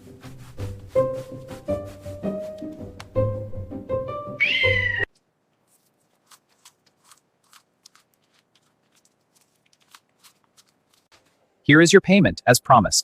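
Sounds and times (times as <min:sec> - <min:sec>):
background music: 0:00.0 - 0:05.1
cat meowing: 0:04.4 - 0:05.1.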